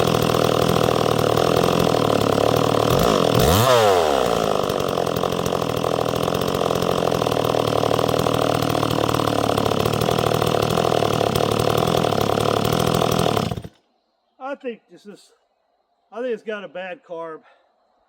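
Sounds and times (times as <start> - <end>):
chainsaw engine idling: 0.0 - 13.8.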